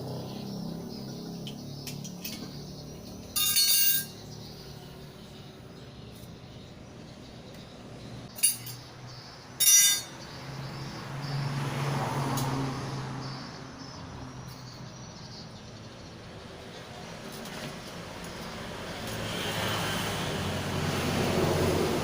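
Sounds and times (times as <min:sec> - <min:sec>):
metallic clinks: 0:03.2 - 0:04.3, 0:08.3 - 0:08.9, 0:09.6 - 0:10.2.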